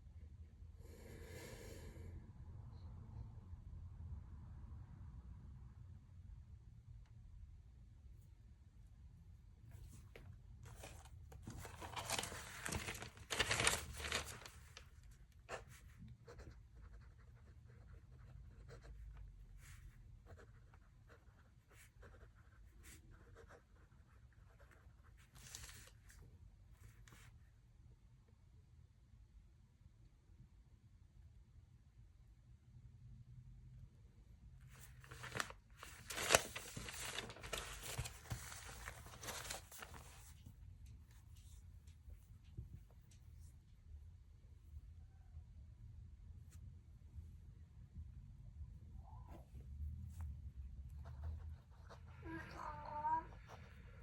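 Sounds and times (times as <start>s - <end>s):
handling noises: 9.8s - 14.9s, 34.9s - 40.4s
paper rustling and crinkling: 9.8s - 16.5s, 25.2s - 26.2s, 34.7s - 40.5s.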